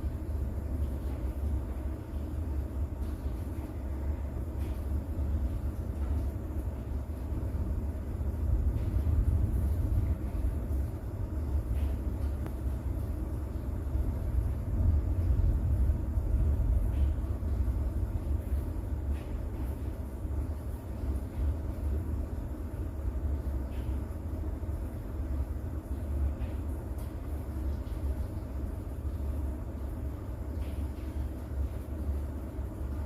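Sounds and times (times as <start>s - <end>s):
light rain: 0.0s - 33.0s
raindrop ticks: 4.4s - 33.0s
distant thunder rumbling: 7.3s - 20.4s.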